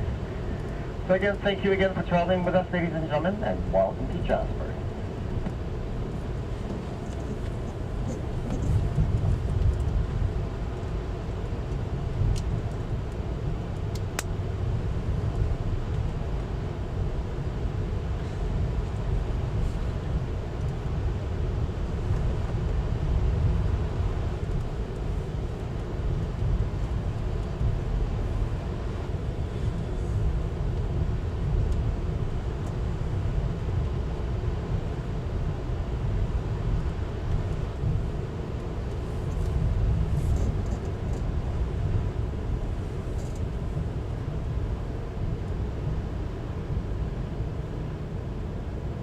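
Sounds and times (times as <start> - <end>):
train rumbling from inside: 0.0 - 49.0.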